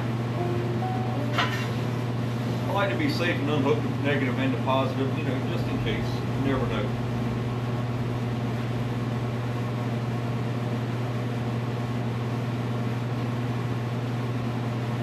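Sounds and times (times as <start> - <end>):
electric fan humming: 0.0 - 15.0.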